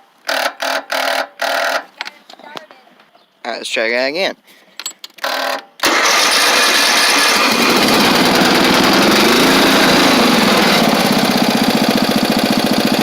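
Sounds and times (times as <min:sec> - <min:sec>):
lawn tractor engine starting and running: 0:05.3 - 0:13.0.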